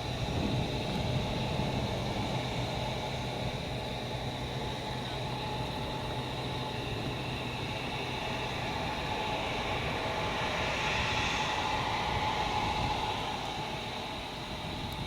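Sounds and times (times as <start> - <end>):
jet engines rushing: 0.0 - 15.0
thin engine whine: 0.0 - 15.0.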